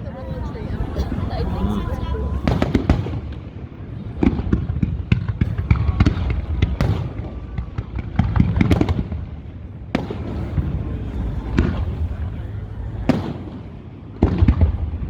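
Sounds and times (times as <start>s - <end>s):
low rumble: 0.0s - 15.0s
fireworks bangs and crackles: 0.4s - 15.0s.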